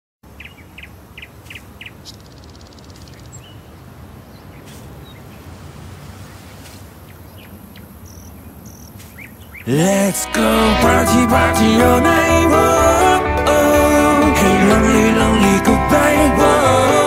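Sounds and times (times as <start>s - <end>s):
birds chirping: 0.4s - 5.5s, 7.0s - 10.3s.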